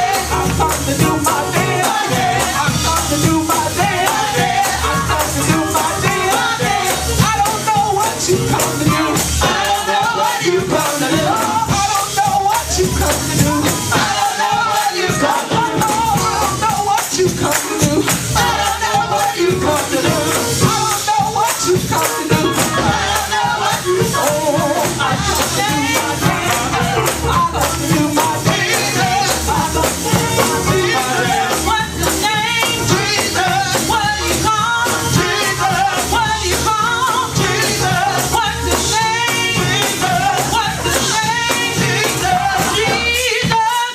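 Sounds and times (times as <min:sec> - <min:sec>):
congregation singing and shouting: 0:00.0 - 0:43.9.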